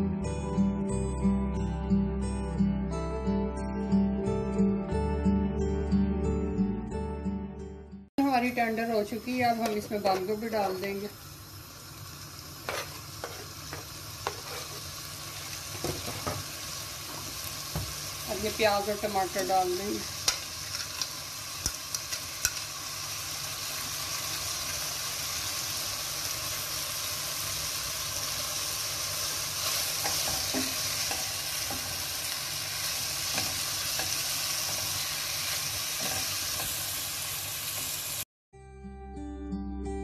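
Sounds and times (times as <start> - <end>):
food sizzling in a pot: 8.2 - 38.3.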